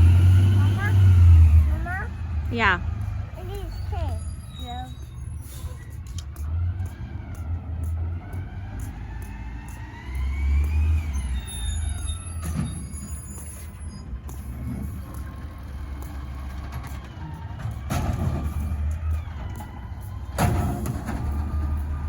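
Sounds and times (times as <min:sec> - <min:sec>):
garbage truck engine rumbling: 0:00.0 - 0:22.0
rising whine: 0:06.4 - 0:17.0.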